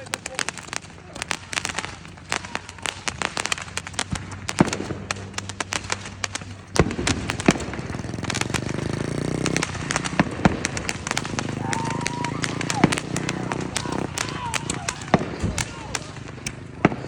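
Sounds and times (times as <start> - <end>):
roman candles popping: 0.0 - 17.0
small motorbike engine revving: 0.0 - 17.0.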